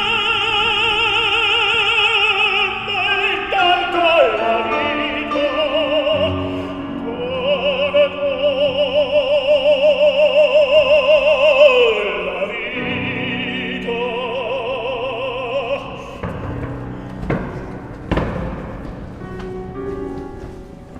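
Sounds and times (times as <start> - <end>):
operatic singing: 0.0 - 20.0
instrumental accompaniment: 15.6 - 20.9.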